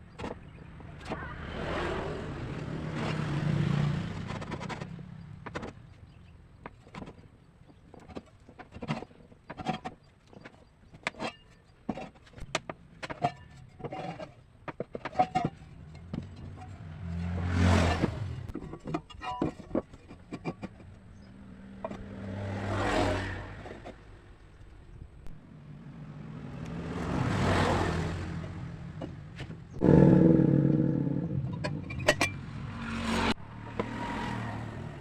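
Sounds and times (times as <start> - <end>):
scattered clicks and knocks: 4.2 - 16.8.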